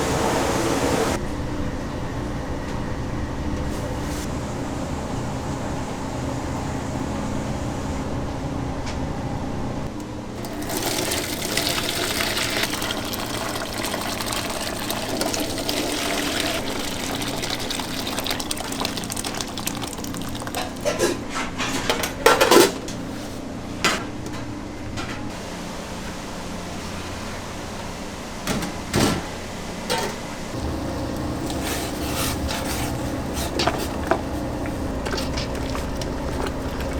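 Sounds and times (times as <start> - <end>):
machine humming: 0.0 - 9.8, 29.4 - 36.9
water running into a sink: 10.4 - 21.0, 30.5 - 36.9.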